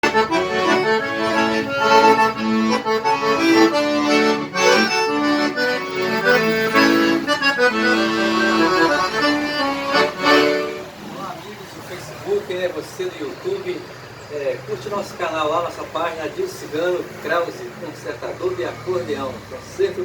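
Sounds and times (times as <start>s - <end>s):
accordion melody: 0.0s - 14.0s.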